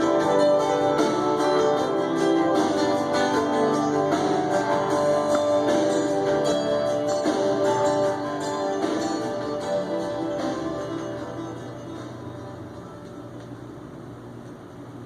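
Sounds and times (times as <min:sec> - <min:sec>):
guitar music from vinyl record: 0:00.0 - 0:13.8.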